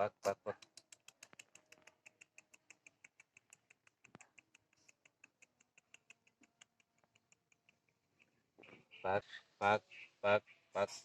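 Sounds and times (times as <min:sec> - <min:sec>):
rapid high ticks: 0:00.5 - 0:08.4.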